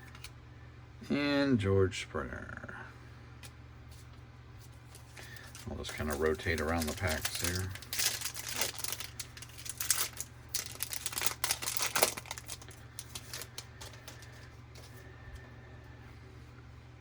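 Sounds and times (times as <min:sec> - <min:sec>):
foil wrapper crinkling: 0:04.7 - 0:15.0.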